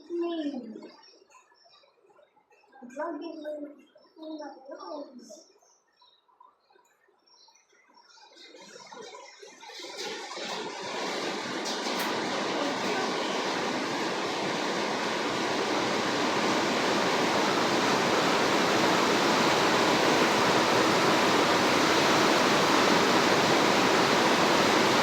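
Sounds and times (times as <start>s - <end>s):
falling water rushing: 9.8s - 25.0s.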